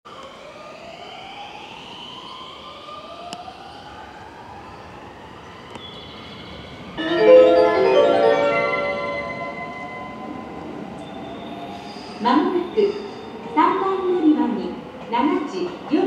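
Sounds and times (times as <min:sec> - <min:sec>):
platform chime melody: 0:07.0 - 0:11.4.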